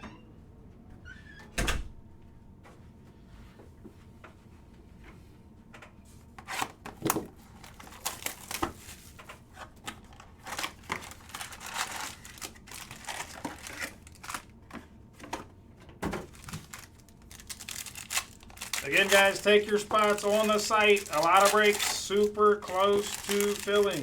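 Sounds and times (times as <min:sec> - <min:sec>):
wrappers crinkling and tearing: 0:07.6 - 0:09.0, 0:09.9 - 0:14.6, 0:16.2 - 0:24.0.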